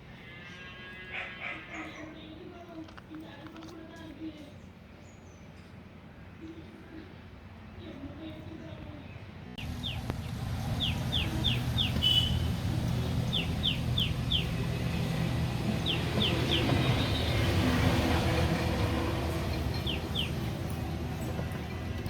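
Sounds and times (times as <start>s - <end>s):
vehicle engine rumble: 9.6s - 22.0s.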